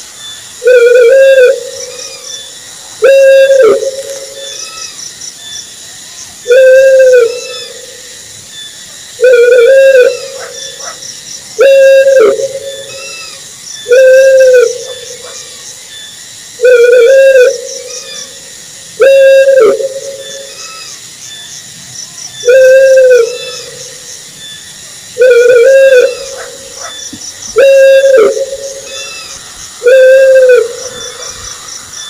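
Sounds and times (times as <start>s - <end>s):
owl hooting: 0.6s - 5.0s, 6.5s - 8.0s, 9.2s - 11.0s, 11.6s - 15.5s, 16.6s - 18.4s, 19.0s - 21.0s, 22.4s - 24.0s, 25.2s - 31.7s.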